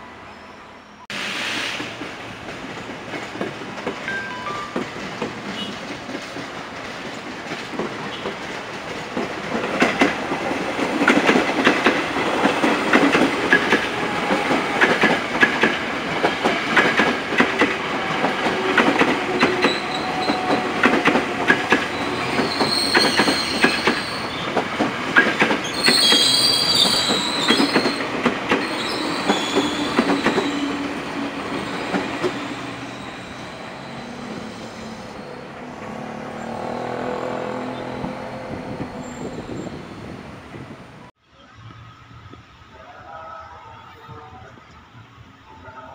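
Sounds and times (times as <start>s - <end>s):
train approaching: 0.0s - 45.9s
train wheels clattering: 1.7s - 35.0s
high-pitched wheel squeals: 21.7s - 24.5s, 25.6s - 35.5s, 37.2s - 40.2s.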